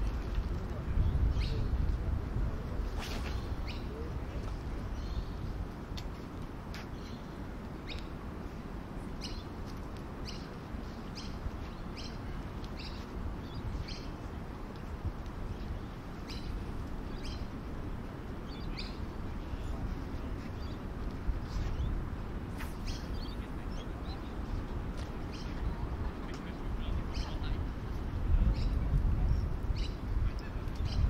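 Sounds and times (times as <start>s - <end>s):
small birds chirping: 18.4s - 22.0s, 22.6s - 27.6s.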